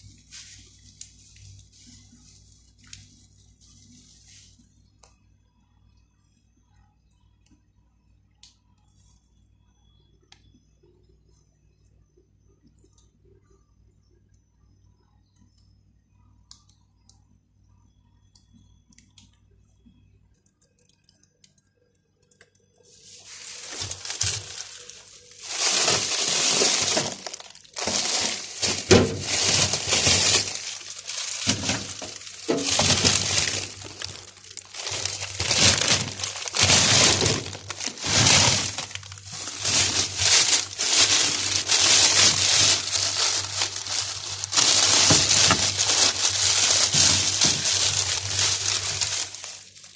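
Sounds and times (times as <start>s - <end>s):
packaging crinkling and rustling: 23.0s - 49.9s.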